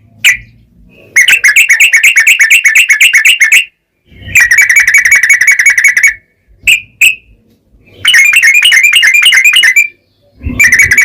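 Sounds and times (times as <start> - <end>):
bird chattering song: 7.8 - 11.0.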